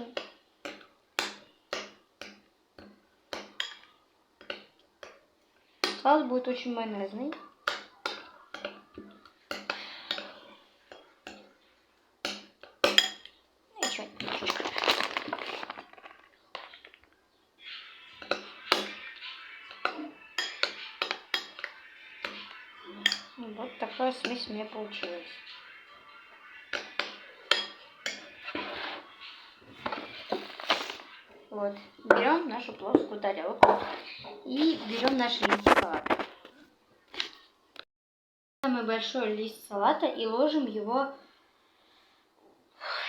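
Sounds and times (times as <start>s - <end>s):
spoon clinking against a bowl: 0.2s - 5.2s, 12.2s - 14.3s, 18.2s - 23.4s, 26.7s - 28.4s
thick sauce being stirred: 7.3s - 32.4s
background music: 17.5s - 35.4s.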